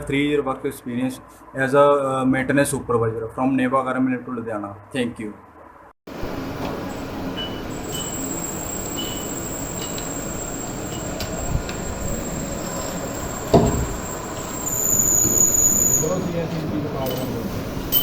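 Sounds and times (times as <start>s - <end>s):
machine rumble: 6.1s - 15.0s
thin high whine: 6.1s - 18.0s.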